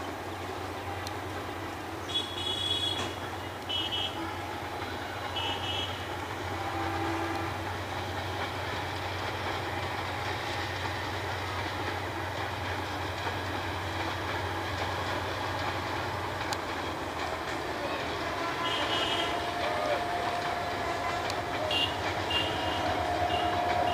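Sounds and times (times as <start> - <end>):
passing train rumble: 0.0 - 23.9
high-pitched train toot: 2.0 - 7.9, 17.4 - 23.9.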